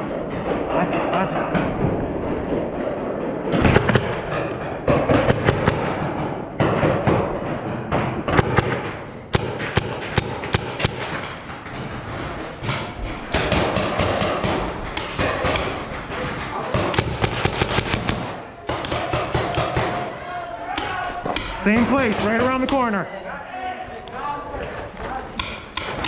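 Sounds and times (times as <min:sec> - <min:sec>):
paintball markers firing: 0:08.3 - 0:11.5, 0:12.7 - 0:22.9.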